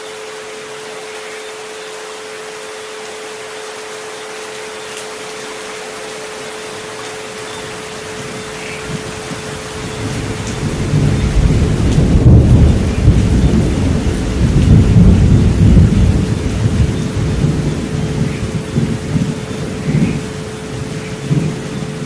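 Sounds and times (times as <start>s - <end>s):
steady rain: 0.0s - 22.0s
low roll of thunder: 8.1s - 22.0s.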